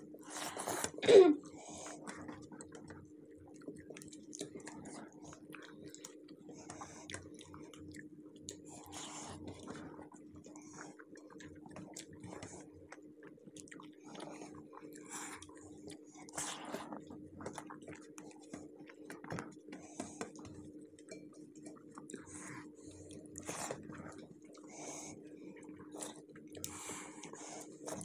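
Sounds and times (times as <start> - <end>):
people chewing: 0.0 - 28.0.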